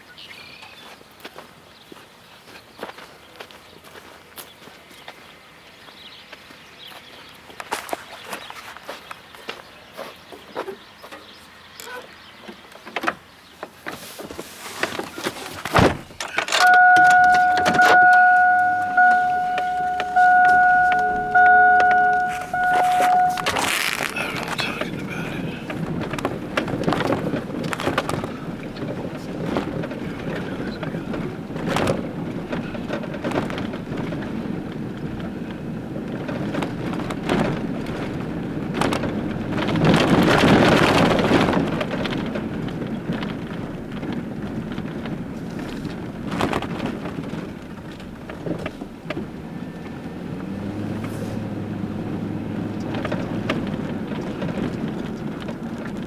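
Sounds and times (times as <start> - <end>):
delivery truck running: 13.4 - 56.0
knocks and clicks: 15.7 - 24.8.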